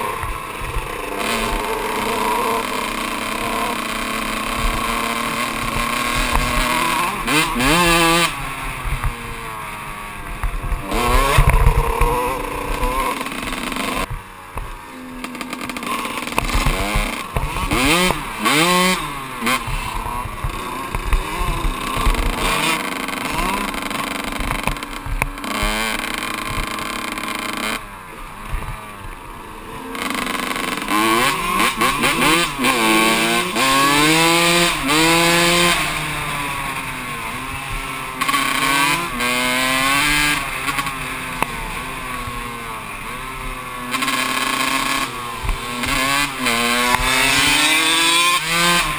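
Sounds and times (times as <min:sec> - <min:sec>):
motocross engine revving: 0:00.0 - 0:48.9.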